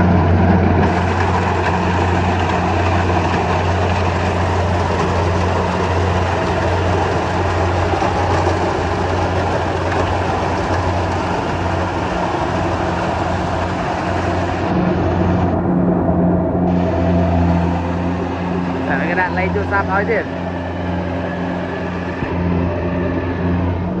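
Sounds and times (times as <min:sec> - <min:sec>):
threshing machinery clatter: 0:00.0 - 0:15.6
combine harvester engine drone: 0:00.0 - 0:24.0.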